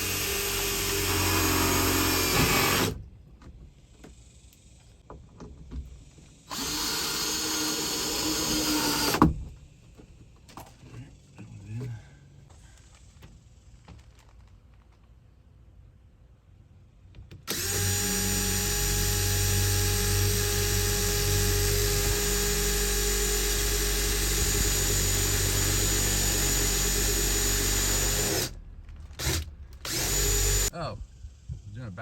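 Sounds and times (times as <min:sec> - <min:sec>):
power drill running: 0:00.0 - 0:03.0, 0:06.4 - 0:09.3, 0:17.5 - 0:30.7.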